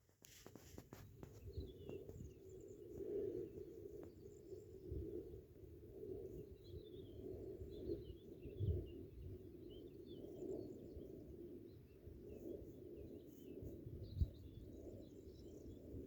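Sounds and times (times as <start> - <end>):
faint bird chirps: 6.3 - 16.0.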